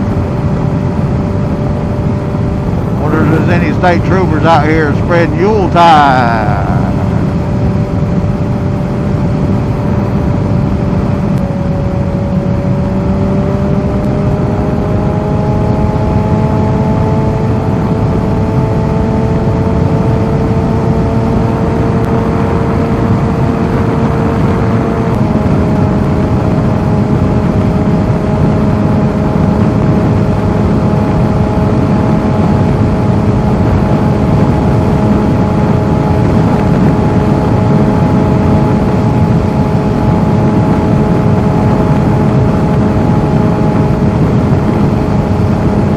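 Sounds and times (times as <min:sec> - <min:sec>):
motorcycle engine accelerating: 0:00.0 - 0:45.9
wind rush: 0:00.0 - 0:45.9.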